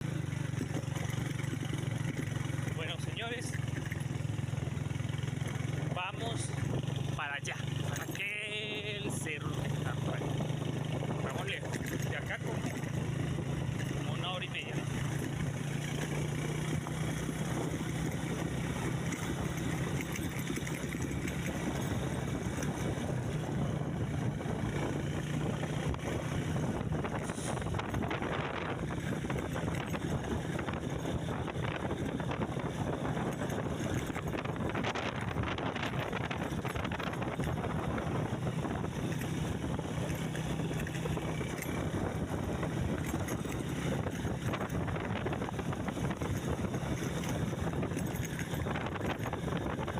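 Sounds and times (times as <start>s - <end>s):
rushing noise of travel: 0.0s - 49.9s
vehicle engine humming: 0.0s - 49.9s
wind on microphone: 21.0s - 49.9s.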